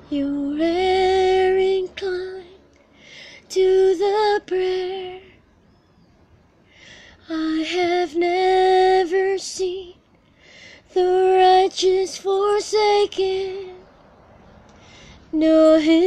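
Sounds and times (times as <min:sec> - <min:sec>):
woman singing unaccompanied: 0:00.0 - 0:02.6, 0:03.4 - 0:05.4, 0:07.2 - 0:10.1, 0:10.8 - 0:13.9, 0:15.3 - 0:16.0.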